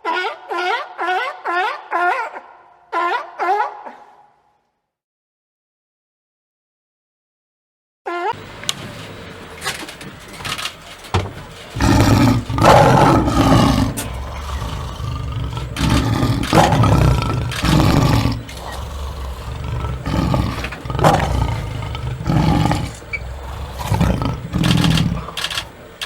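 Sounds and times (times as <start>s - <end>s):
big cat roaring: 11.7s - 26.0s.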